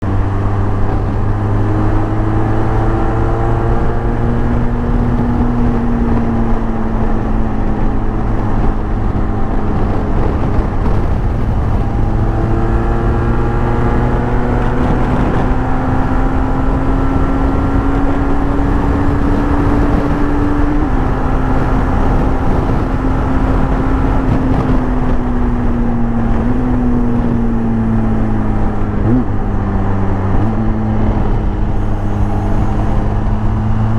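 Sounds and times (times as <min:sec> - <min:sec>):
motorcycle engine running: 0:00.0 - 0:33.9
road rush: 0:00.0 - 0:33.9
wind: 0:00.0 - 0:33.9.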